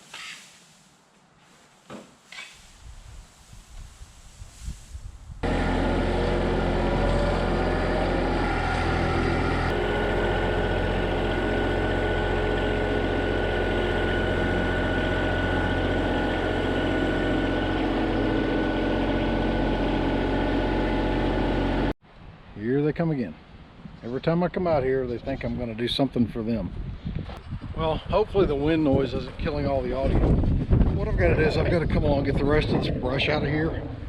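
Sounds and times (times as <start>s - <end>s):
steady whine: 5.4s - 22.0s
tractor diesel engine running: 5.4s - 22.0s.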